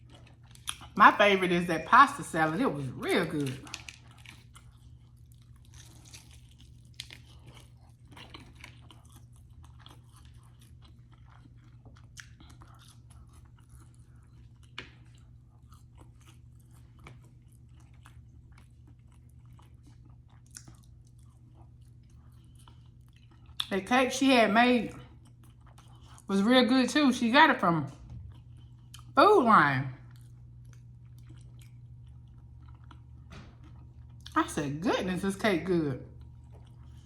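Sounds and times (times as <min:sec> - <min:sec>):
chewing crispy fried food: 0:00.0 - 0:34.4, 0:35.4 - 0:37.0.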